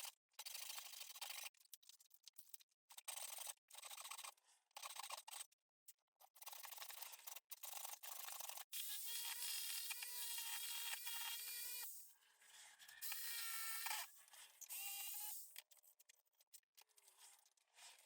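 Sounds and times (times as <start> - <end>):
saw cutting through wood: 8.8 - 12.0, 12.8 - 15.5.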